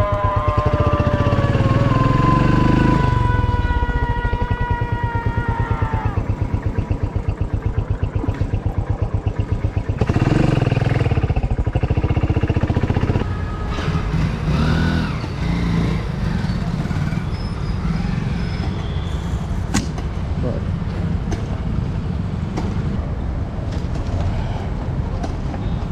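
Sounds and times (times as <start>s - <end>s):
rising-and-falling tones: 0.0s - 6.8s
motorcycle engine running: 0.0s - 17.3s.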